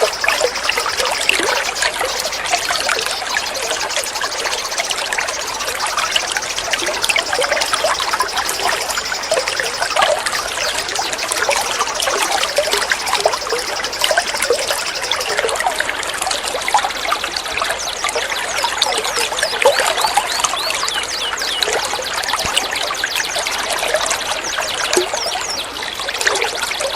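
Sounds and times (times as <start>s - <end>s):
songbirds chirping and whistling: 0.0s - 15.4s, 17.6s - 25.9s
high buzzy trill: 0.0s - 15.5s.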